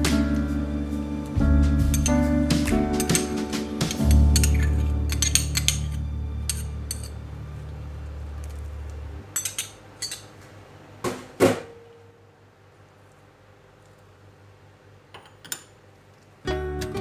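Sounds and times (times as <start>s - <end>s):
low steady hum: 0.0s - 17.0s
cutlery and dishes clinking: 1.9s - 7.2s, 9.3s - 10.3s.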